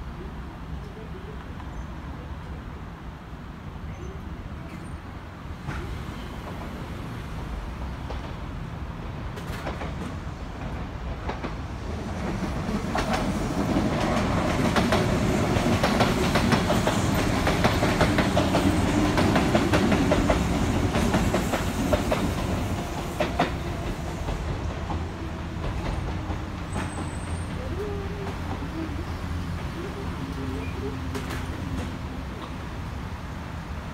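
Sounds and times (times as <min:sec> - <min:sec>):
train wheels clacking over rail joints: 0:09.3 - 0:11.6, 0:12.2 - 0:28.7.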